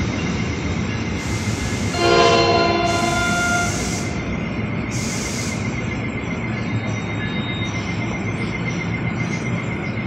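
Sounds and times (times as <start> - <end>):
train wheels rumbling on rail: 0.0 - 10.0
train horn chord: 1.9 - 4.2.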